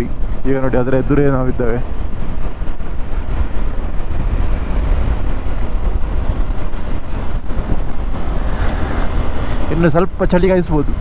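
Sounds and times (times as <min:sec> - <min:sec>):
road noise: 0:00.0 - 0:11.0
wind buffeting on microphone: 0:00.0 - 0:11.0
motorcycle engine: 0:02.2 - 0:09.8.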